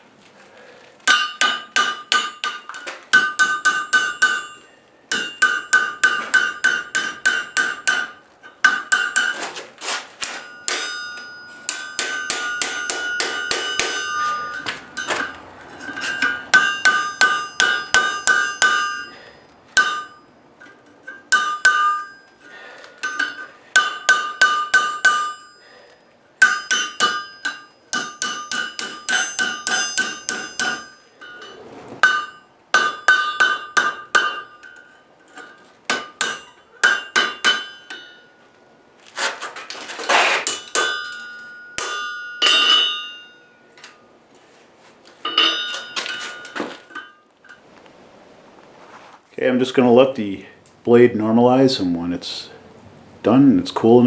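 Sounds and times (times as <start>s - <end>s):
anvil ringing: 1.1s - 9.4s, 10.3s - 20.4s, 21.1s - 22.4s, 23.0s - 25.8s, 26.4s - 35.0s, 40.5s - 43.7s, 45.3s - 47.2s.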